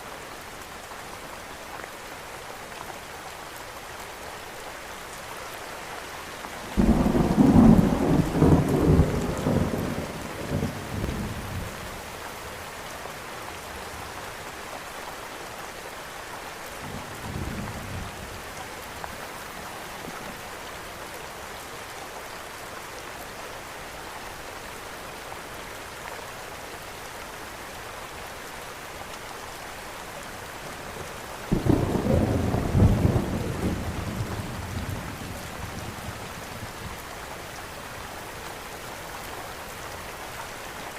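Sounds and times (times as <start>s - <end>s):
steady rain: 0.0s - 40.9s
thunder rumbling: 6.8s - 11.8s, 31.5s - 36.0s.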